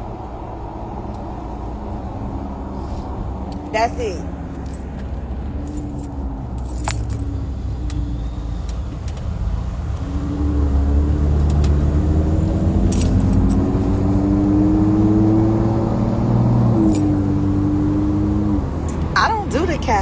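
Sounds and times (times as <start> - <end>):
low road hum: 0.0 - 20.0
vehicle engine speeding up: 5.7 - 20.0.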